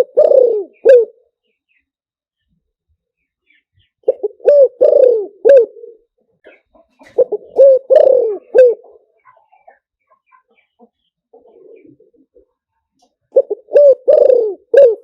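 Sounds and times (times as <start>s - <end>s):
dove cooing: 0.0s - 1.3s, 4.0s - 6.1s, 7.0s - 9.1s, 11.4s - 12.5s, 13.3s - 15.0s.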